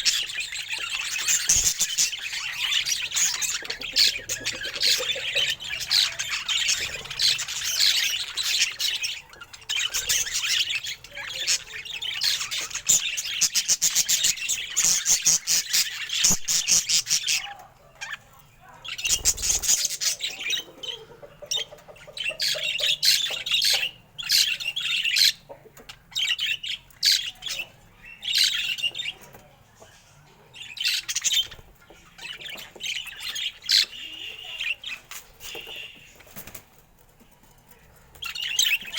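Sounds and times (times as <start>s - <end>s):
budgerigar chattering: 0.0s - 17.5s.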